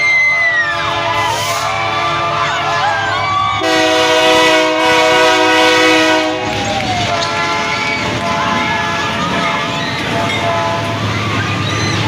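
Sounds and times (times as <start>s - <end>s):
onlookers shouting: 0.0s - 12.0s
train rumble: 0.0s - 12.0s
locomotive air horn blast: 0.6s - 2.7s, 3.6s - 9.5s, 10.1s - 11.1s.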